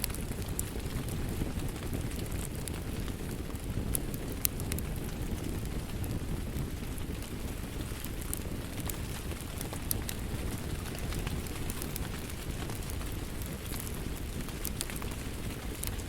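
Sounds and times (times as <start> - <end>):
burning wood popping: 0.0 - 16.0
wood fire crackling: 0.0 - 16.0.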